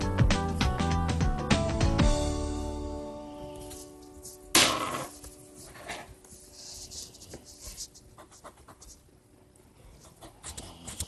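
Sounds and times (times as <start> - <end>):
pencil scratching on paper: 5.6 - 9.1, 9.9 - 11.0.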